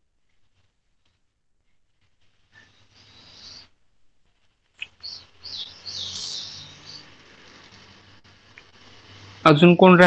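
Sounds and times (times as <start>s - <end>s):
bird chirping: 2.4s - 3.8s, 4.7s - 9.4s.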